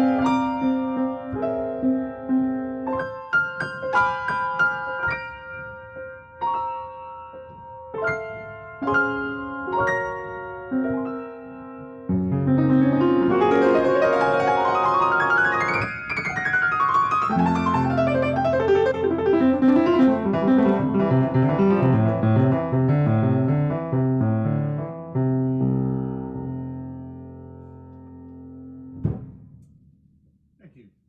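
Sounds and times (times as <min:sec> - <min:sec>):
piano playing: 0:00.0 - 0:29.3.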